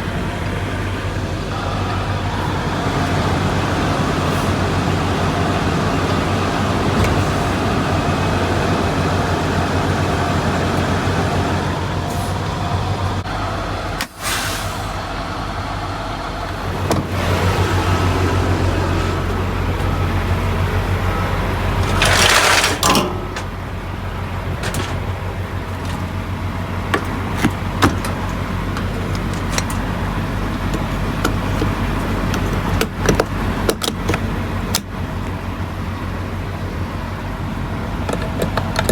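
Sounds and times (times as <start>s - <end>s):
diesel truck engine humming: 0.0s - 38.9s.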